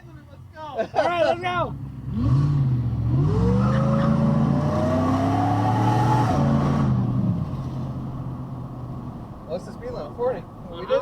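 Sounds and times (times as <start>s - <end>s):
car engine accelerating: 1.8s - 9.4s.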